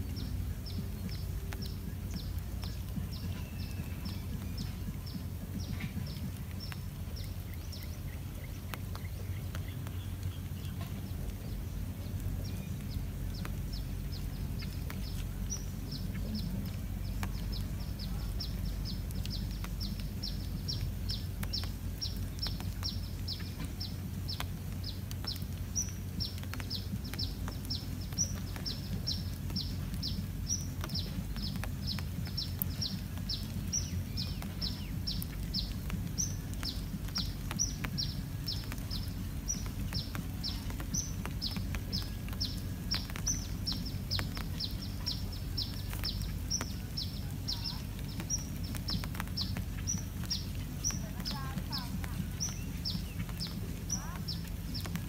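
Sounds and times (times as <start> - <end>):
low steady rumble: 0.0 - 55.0
small bird chirping: 0.0 - 55.0.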